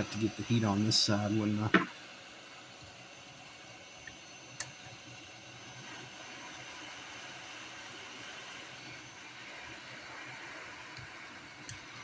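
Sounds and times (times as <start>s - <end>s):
hot air blower hissing: 0.0s - 12.0s.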